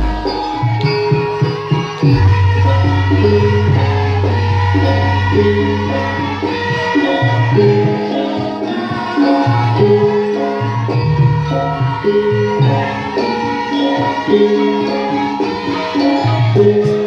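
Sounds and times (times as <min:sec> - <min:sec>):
hand drum and jingles: 0:00.0 - 0:02.4.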